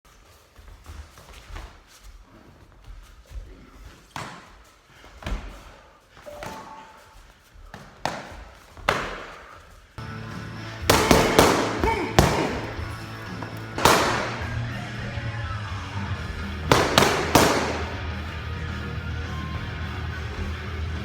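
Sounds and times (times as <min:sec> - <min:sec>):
loud music: 0:10.2 - 0:20.1
hard hits: 0:10.9 - 0:13.0, 0:13.8 - 0:14.8, 0:16.6 - 0:18.3.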